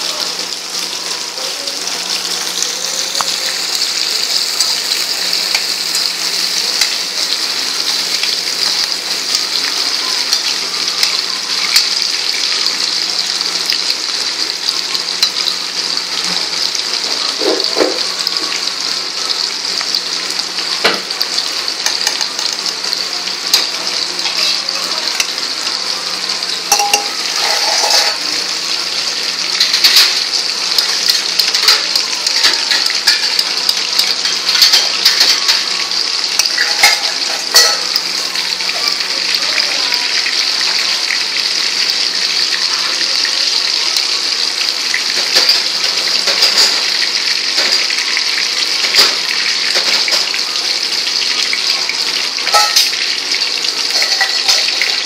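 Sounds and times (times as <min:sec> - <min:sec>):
vegetables sizzling in hot oil: 0:00.0 - 0:55.0
ladle clinking and scraping pan: 0:26.7 - 0:28.3, 0:36.4 - 0:38.0, 0:52.4 - 0:53.0, 0:53.9 - 0:54.9.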